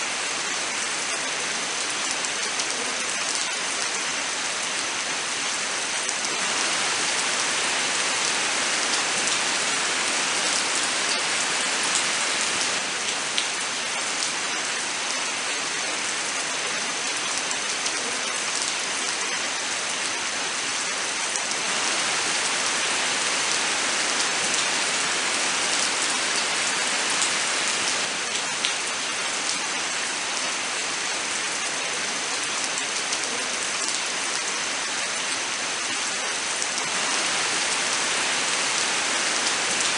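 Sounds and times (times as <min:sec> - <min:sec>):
steady rain hissing: 0:00.0 - 0:39.9
raindrops ticking on surfaces: 0:01.0 - 0:15.1, 0:21.2 - 0:31.0.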